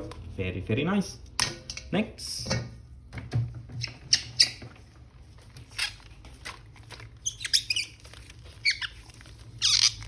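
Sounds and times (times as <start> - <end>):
plastic packaging crinkling: 5.2 - 10.0
high squeaks: 7.2 - 10.0.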